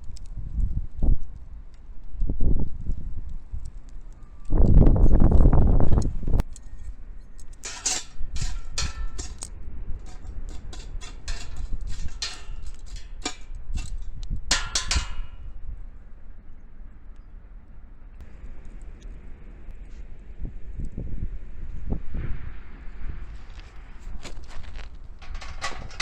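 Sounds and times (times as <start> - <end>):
wood fire crackling: 0.0 - 15.5, 22.9 - 26.0.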